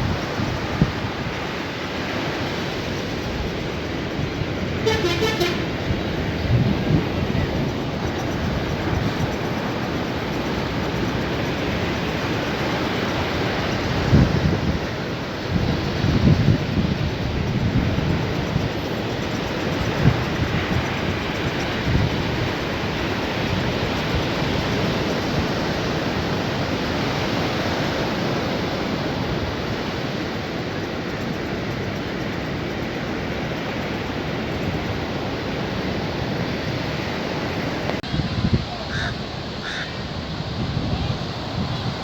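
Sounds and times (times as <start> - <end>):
sea surf breaking on beach: 0.0 - 42.0
short calls: 4.8 - 5.8, 38.6 - 40.0.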